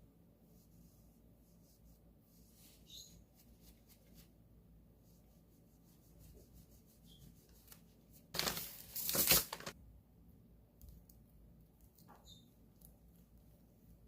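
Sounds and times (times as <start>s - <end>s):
plastic packaging rustling: 8.3s - 9.8s.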